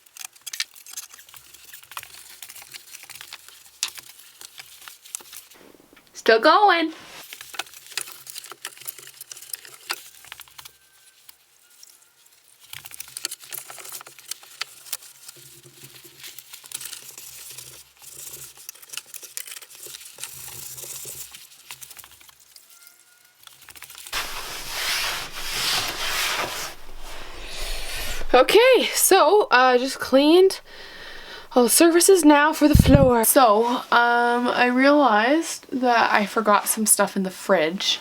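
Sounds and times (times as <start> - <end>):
loud steady hiss: 24.2 - 33.2
scratchy rubbing and wiping: 24.2 - 33.2.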